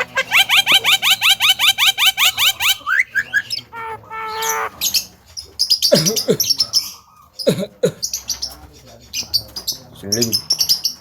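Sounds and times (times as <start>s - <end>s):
myna calling: 0.0s - 5.1s.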